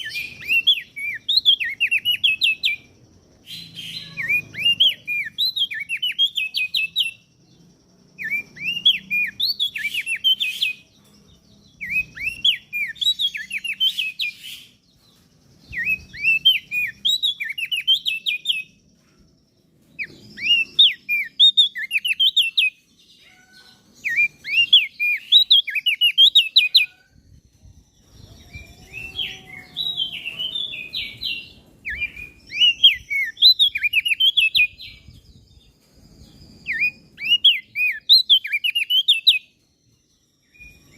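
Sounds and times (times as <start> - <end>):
bird singing rapid high chirps: 0.0 - 40.9.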